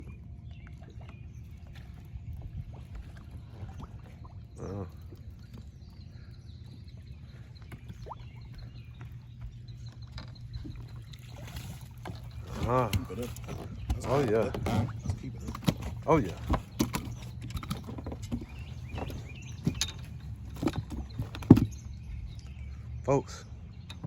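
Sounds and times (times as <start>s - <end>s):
fishing boat engine rumble: 0.0s - 24.0s.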